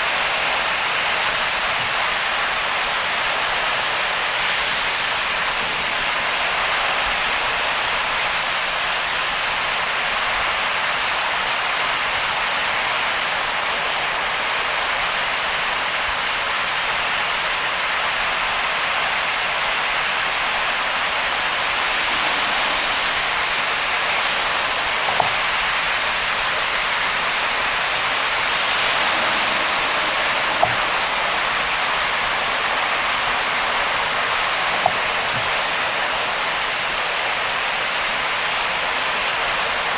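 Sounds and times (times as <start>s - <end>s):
heavy rain on a car: 0.0s - 39.9s
tyre spray on wet road: 19.2s - 38.4s.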